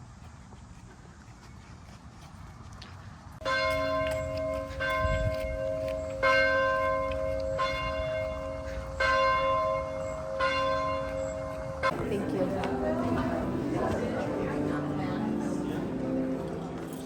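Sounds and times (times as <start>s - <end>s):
church bell tolling: 3.4s - 17.0s.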